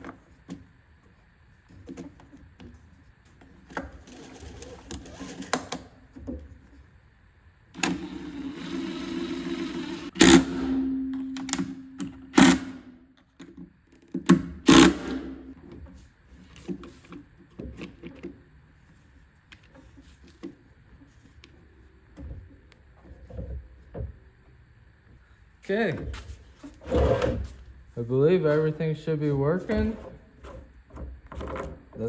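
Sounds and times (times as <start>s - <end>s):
small motor whirring: 7.8s - 10.6s.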